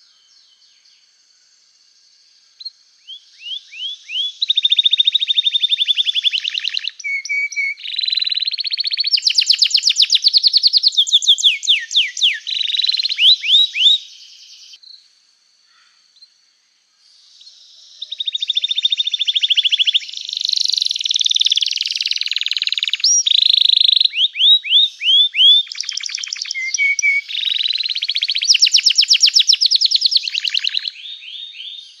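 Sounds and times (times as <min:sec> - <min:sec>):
canary singing trills: 0:02.6 - 0:14.8, 0:17.9 - 0:32.0.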